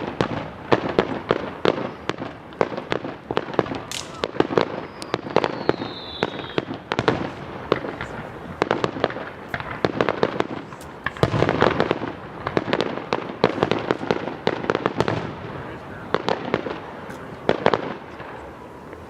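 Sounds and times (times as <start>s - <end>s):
fireworks cracking and banging: 0.0s - 19.0s
falling firework whistle: 3.7s - 7.4s.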